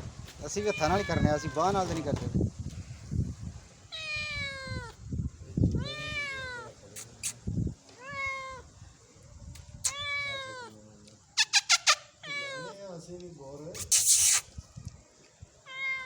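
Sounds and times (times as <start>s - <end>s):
cat meowing: 0.6s - 2.1s, 3.9s - 5.0s, 5.7s - 6.7s, 7.9s - 8.7s, 9.8s - 10.8s, 11.4s - 12.9s, 15.7s - 16.0s.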